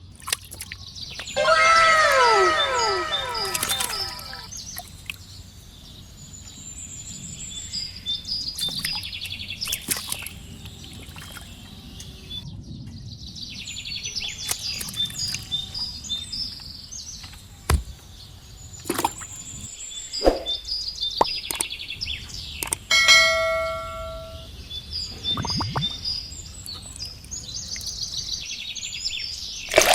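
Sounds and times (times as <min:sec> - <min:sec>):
birds chirping and trilling: 0:00.0 - 0:29.7
steady ringing tone: 0:22.9 - 0:24.5.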